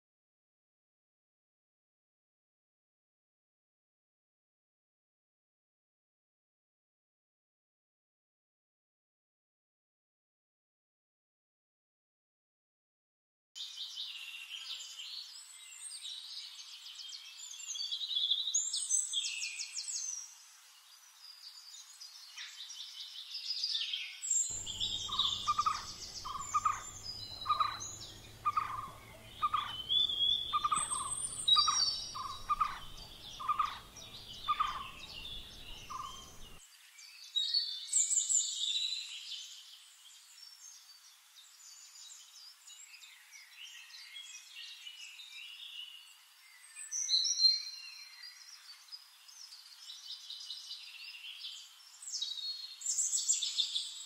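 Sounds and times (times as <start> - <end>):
songbirds chirping and trilling: 13.6 - 54.0
bird repeating a single note: 24.6 - 36.5.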